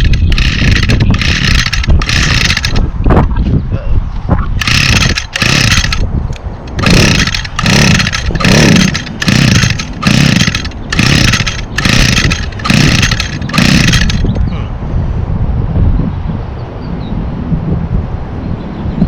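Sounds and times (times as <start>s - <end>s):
string trimmer starter rope pulls: 0.0s - 2.9s, 4.6s - 14.4s.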